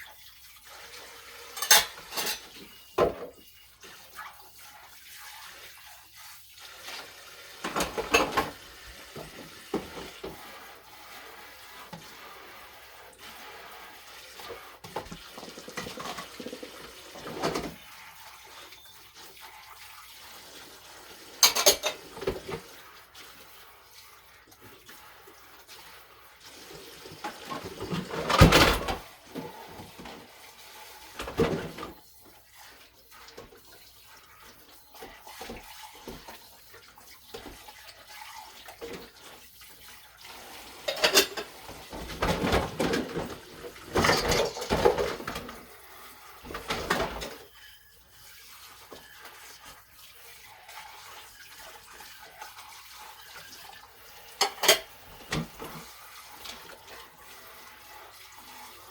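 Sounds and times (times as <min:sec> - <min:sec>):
tap water gushing: 0:00.0 - 0:58.9
dishes being handled: 0:01.6 - 0:03.4, 0:21.4 - 0:22.6, 0:40.8 - 0:45.5, 0:54.4 - 0:55.5.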